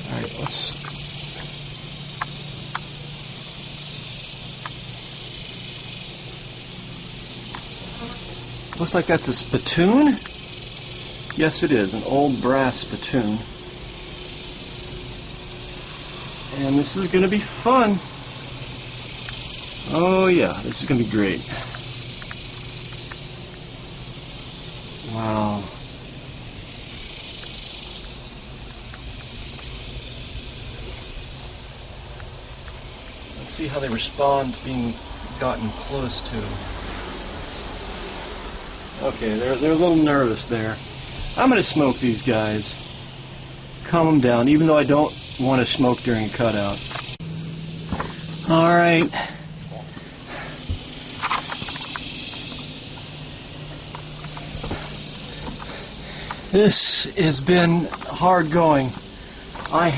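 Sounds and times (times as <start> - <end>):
honeybee colony humming: 0.0 - 59.9
faint ticks: 0.4 - 3.0, 4.6 - 6.2, 7.4 - 8.9, 10.2 - 11.4, 18.4 - 19.8, 20.7 - 23.7, 26.6 - 32.9, 47.9 - 56.6.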